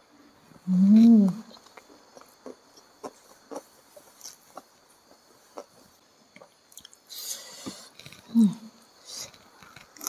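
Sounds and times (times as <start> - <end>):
person chewing food: 1.5 - 7.0.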